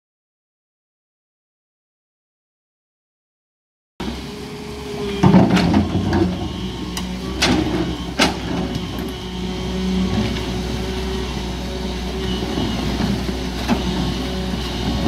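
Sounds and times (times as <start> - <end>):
excavator diesel engine running: 4.0 - 15.0.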